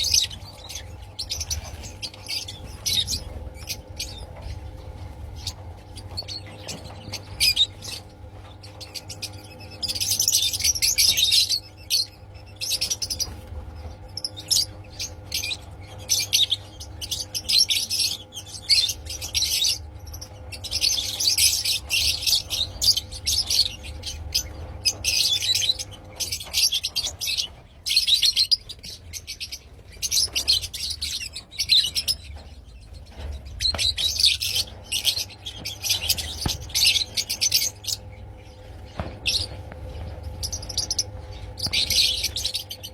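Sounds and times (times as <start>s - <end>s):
lovebirds chirping shrilly: 0.0s - 42.9s
steady low hum: 0.0s - 42.9s.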